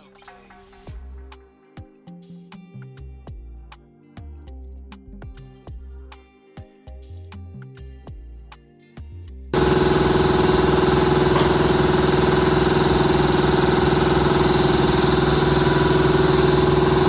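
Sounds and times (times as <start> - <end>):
background music: 0.0 - 9.5
car engine idling: 9.6 - 17.0.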